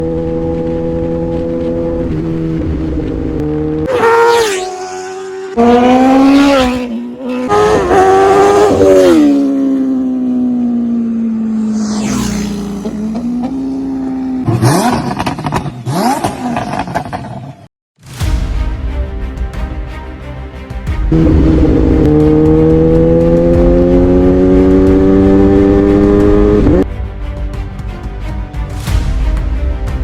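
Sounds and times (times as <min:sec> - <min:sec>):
motorcycle engine revving: 0:00.0 - 0:17.6, 0:21.1 - 0:26.9
motorcycle passing by: 0:03.6 - 0:14.9, 0:21.1 - 0:26.8.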